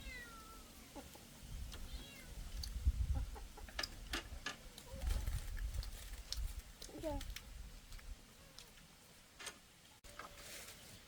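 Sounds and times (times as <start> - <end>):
meow-like animal call: 0.0 - 0.8.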